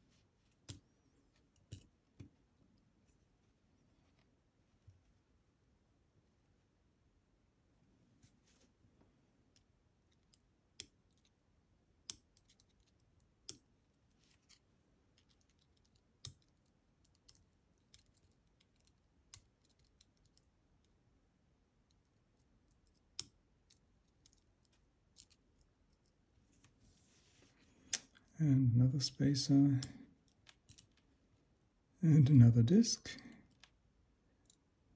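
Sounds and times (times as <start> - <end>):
small metal clicks from lock parts: 1.6 - 2.3, 12.1 - 13.6, 15.2 - 21.0, 21.9 - 26.2, 29.8 - 31.0.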